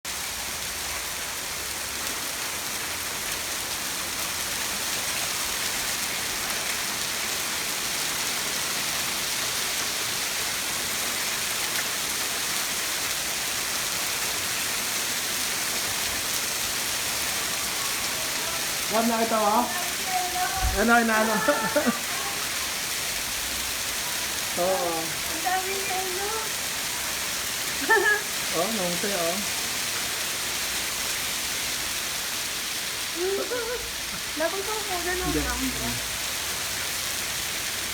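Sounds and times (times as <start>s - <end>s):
hail and rain pelting down: 0.1s - 37.9s
hailstones striking: 18.4s - 22.4s.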